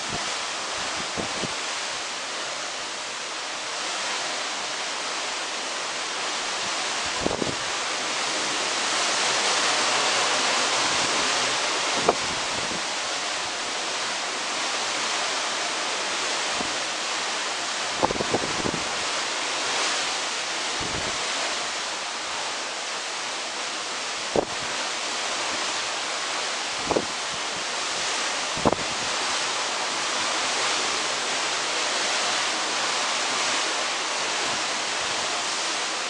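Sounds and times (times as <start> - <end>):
sea: 0.0 - 36.0
wind thumps on microphone: 0.9 - 1.6, 7.1 - 7.6, 12.0 - 12.9, 24.4 - 24.7, 26.8 - 27.2, 28.6 - 29.1.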